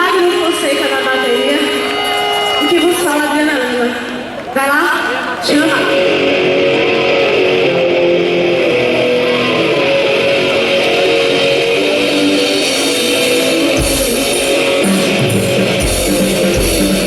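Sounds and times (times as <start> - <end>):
electric guitar: 0.0 - 17.0
drums: 5.4 - 17.0
bass guitar: 5.9 - 17.0.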